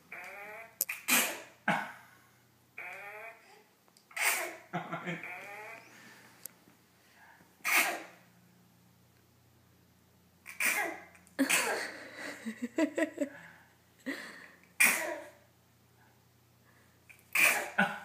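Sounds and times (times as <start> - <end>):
baby sneezing: 0.8 - 1.6, 4.1 - 4.7, 7.6 - 8.2, 10.4 - 11.8, 14.8 - 15.4, 17.3 - 17.8.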